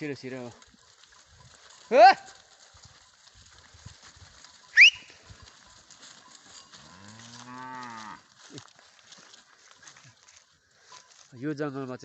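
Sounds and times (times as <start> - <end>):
sharp rising whistle: 4.8 - 5.1
cow mooing: 6.8 - 8.2.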